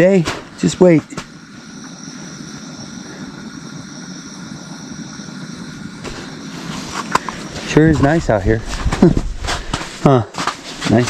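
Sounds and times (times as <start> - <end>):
motor drone with high whine: 0.0 - 11.0.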